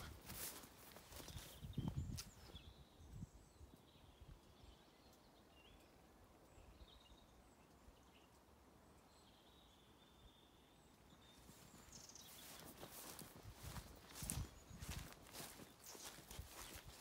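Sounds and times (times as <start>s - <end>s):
faint bird chirps: 9.0s - 17.0s.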